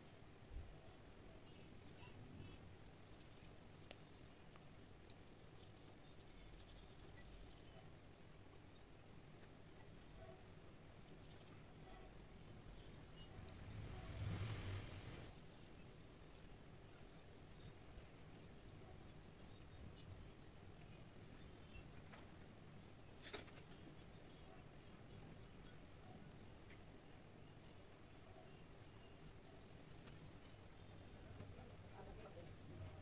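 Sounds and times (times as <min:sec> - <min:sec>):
bird chirping: 0:15.8 - 0:31.4.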